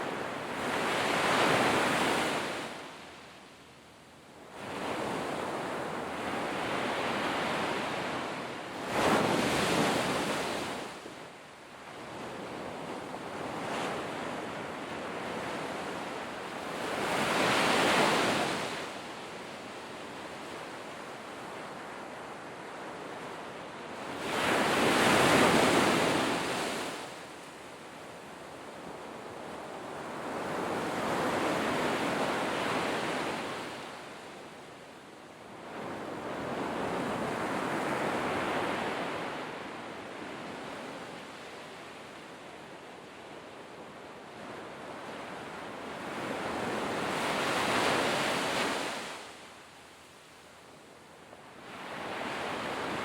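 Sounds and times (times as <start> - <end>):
sea waves breaking on shore: 4.6 - 11.0, 24.0 - 27.2, 45.2 - 49.5.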